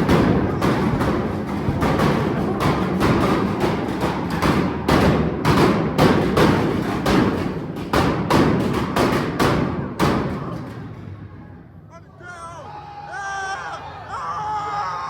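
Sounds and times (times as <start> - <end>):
heavy thuds: 0.0 - 11.3.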